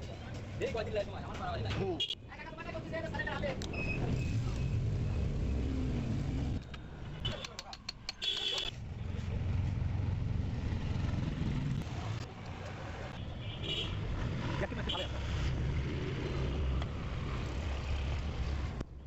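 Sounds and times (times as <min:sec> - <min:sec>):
vehicle engine rumbling: 0:02.6 - 0:18.8
sharp clicks and metallic ticks: 0:06.6 - 0:08.8.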